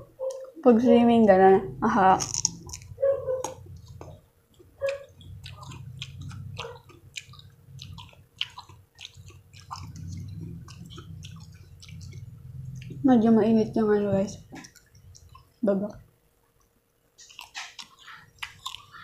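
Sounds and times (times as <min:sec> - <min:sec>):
low steady hum: 0:00.0 - 0:19.0
wet chewing mouth clicks: 0:02.2 - 0:13.1, 0:14.2 - 0:15.6, 0:16.6 - 0:19.0.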